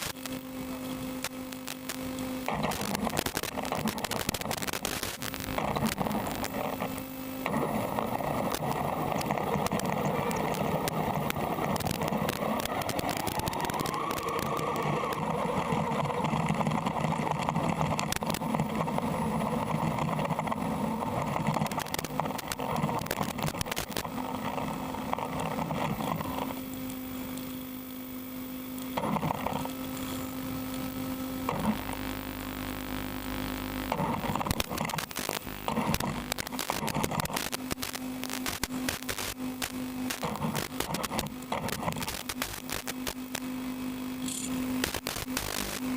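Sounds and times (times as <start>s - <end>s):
steady electrical hum: 0.0s - 45.9s
rc car motor whirring: 2.5s - 27.9s, 44.2s - 45.9s
clicks: 33.9s - 43.5s, 44.2s - 45.9s.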